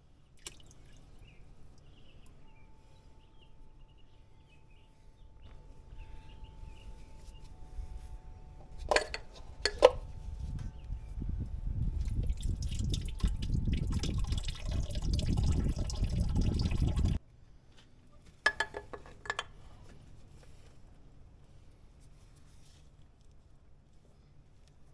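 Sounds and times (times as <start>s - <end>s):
oil pouring into engine: 12.0s - 17.2s.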